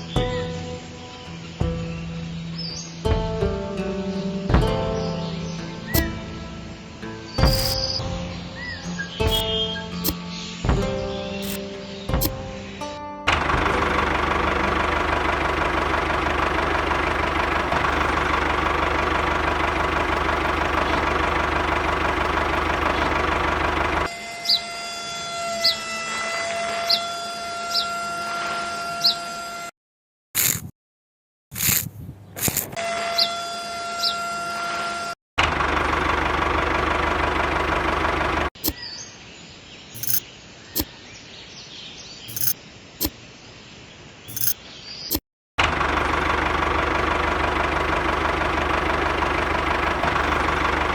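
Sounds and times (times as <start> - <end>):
birds chirping: 0.0 - 12.9, 13.7 - 24.6, 35.9 - 45.2, 46.1 - 50.9
small engine idling with knocking: 3.1 - 11.6, 13.3 - 24.1, 35.4 - 38.6, 40.0 - 40.2, 42.3 - 42.6, 45.6 - 50.9.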